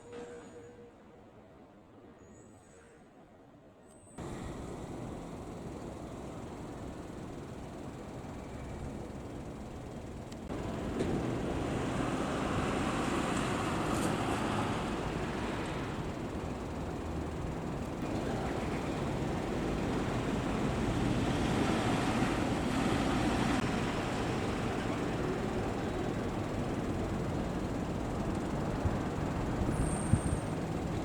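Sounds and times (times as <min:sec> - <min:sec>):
heavy vehicles driving past: 0:04.2 - 0:31.0.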